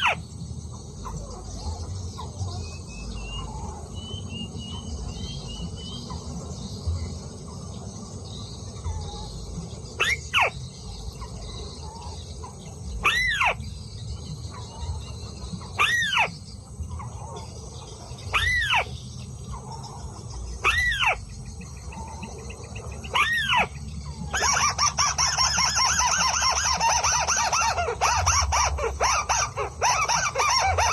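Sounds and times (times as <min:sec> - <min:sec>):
bird squealing arched calls: 0:00.0 - 0:00.3, 0:08.8 - 0:13.8, 0:14.4 - 0:30.9.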